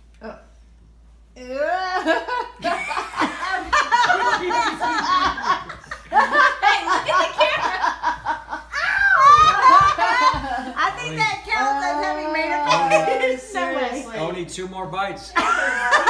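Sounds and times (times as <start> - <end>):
people laughing hard: 2.0 - 11.1, 15.4 - 16.0.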